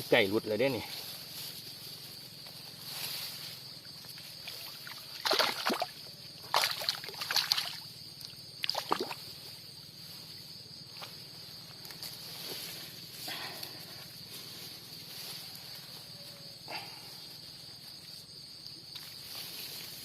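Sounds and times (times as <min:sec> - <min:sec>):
water splashing and sloshing: 0:04.1 - 0:09.6.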